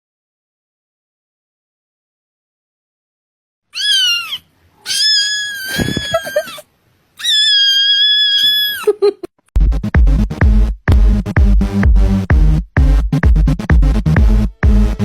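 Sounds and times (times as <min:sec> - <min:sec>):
cat meowing loudly: 0:03.8 - 0:06.6, 0:07.2 - 0:08.9
electronic dance music: 0:09.7 - 0:15.0.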